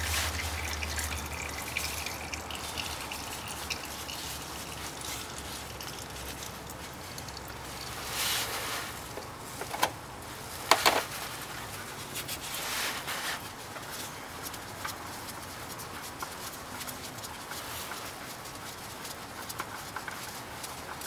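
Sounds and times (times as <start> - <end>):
oil dripping into a pan: 0.0 - 9.4.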